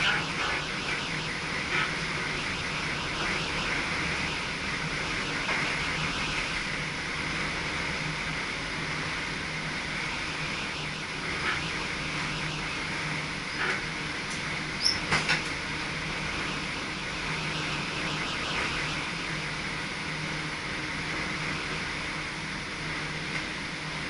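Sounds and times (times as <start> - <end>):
train cab running hum and hiss: 0.0 - 24.0.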